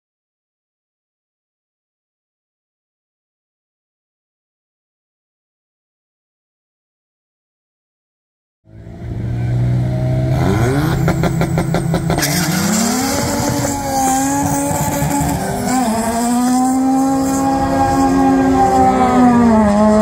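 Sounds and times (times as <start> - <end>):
car accelerating at full throttle: 8.7 - 20.0
car engine starting: 8.7 - 20.0
engine crackle at raised revs: 9.9 - 20.0.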